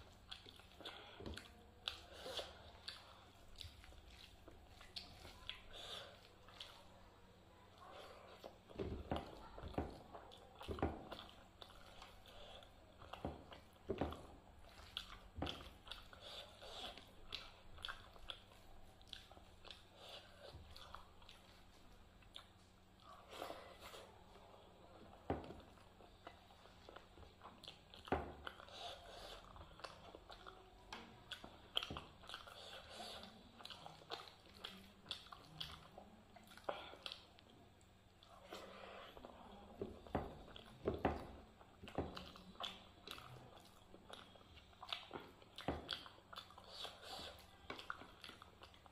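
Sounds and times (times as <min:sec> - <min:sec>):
close chewing with mouth clicks: 0:00.0 - 0:48.9.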